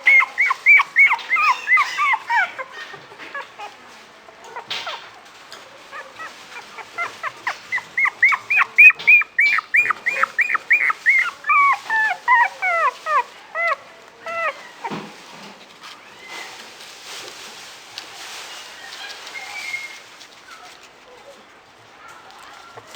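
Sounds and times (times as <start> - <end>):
puppy whimpering and yelping: 0.0 - 3.8, 5.8 - 14.9.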